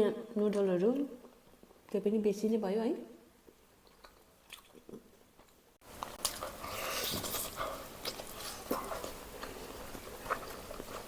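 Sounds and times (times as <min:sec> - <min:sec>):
biting and chewing food: 0:03.5 - 0:11.0.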